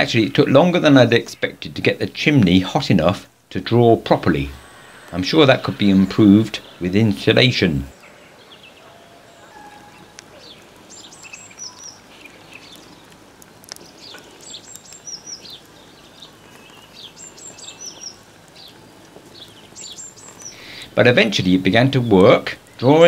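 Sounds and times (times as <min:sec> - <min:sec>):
faint steady hiss: 0:00.0 - 0:23.0
songbird singing high phrase: 0:03.7 - 0:13.0, 0:14.0 - 0:18.8
faint bird chirps: 0:04.2 - 0:23.0.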